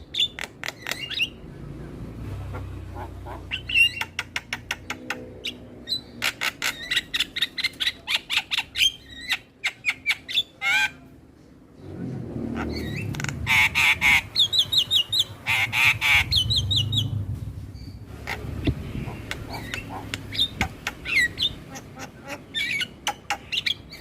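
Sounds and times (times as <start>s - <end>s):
myna birds chattering: 0.0s - 11.0s, 12.5s - 24.0s
harsh drawn-out bird call: 12.5s - 17.1s.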